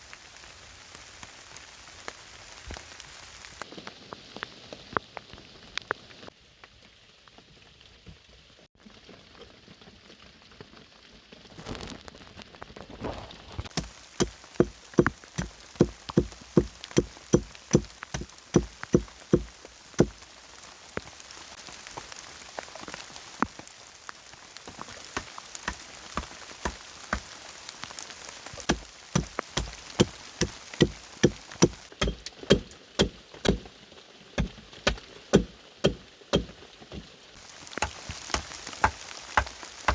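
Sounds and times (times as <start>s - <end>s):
rain patter: 0.0s - 39.9s
sharp regular knocks: 28.7s - 33.6s.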